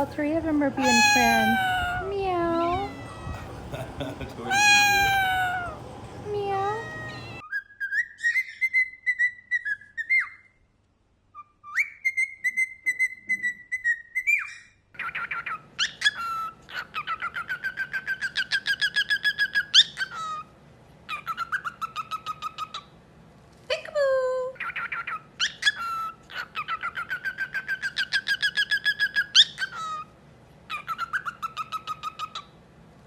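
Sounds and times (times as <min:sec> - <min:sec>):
birds whistling: 0:00.0 - 0:10.6.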